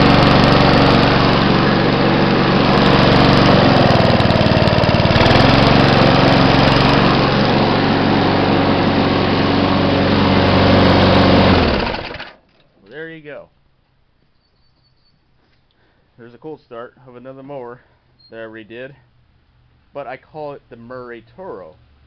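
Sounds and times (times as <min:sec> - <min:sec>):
lawn mower engine running: 0:00.0 - 0:12.5.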